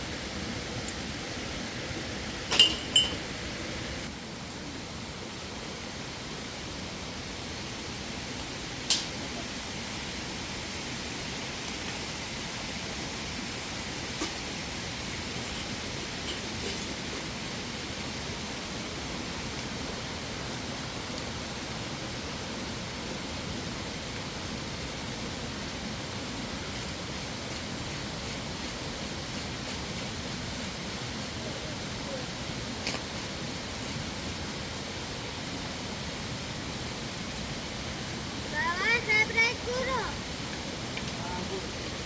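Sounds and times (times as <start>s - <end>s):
flowing water rushing: 0.0s - 4.1s, 5.2s - 42.0s.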